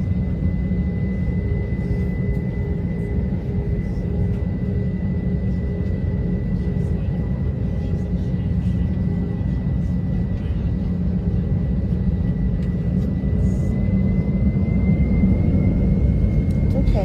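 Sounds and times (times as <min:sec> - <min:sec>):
airliner engines in cabin: 0:00.0 - 0:17.0.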